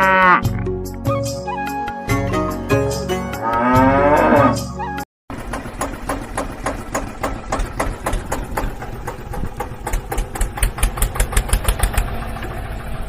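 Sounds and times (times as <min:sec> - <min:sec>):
small engine ticking: 0:05.3 - 0:13.0.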